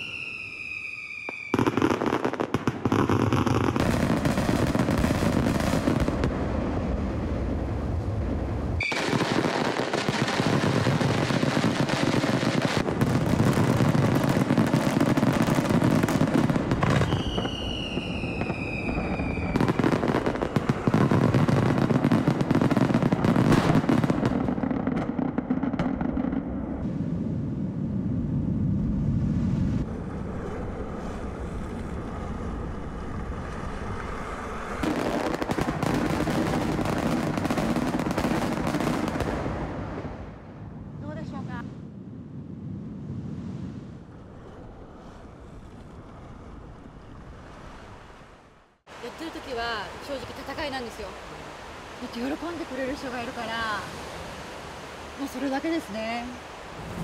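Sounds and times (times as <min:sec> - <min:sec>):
falling whistle: 0:00.0 - 0:01.6, 0:08.8 - 0:09.1, 0:17.0 - 0:19.6.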